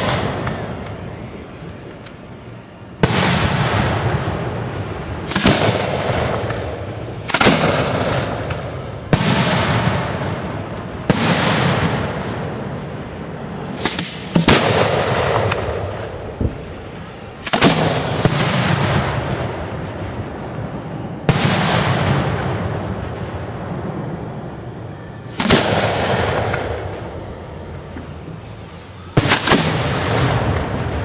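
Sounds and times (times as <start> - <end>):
fireworks bangs with rumble: 0.0 - 1.6, 3.0 - 28.3, 29.2 - 31.0.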